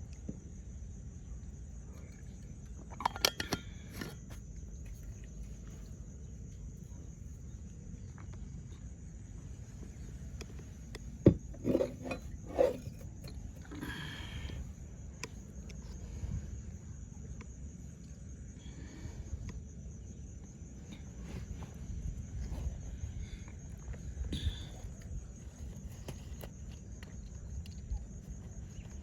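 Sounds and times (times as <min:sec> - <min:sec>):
cup and flask clinking: 0:03.0 - 0:04.2, 0:11.3 - 0:13.8
sharp knock and clattering: 0:11.2 - 0:12.7.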